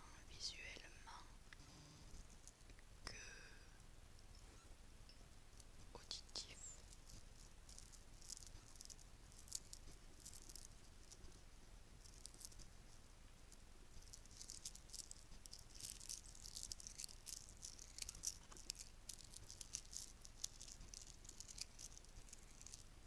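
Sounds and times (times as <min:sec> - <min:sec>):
bracelets clicking and clinking: 0:06.8 - 0:11.2, 0:12.0 - 0:12.7, 0:14.0 - 0:22.9.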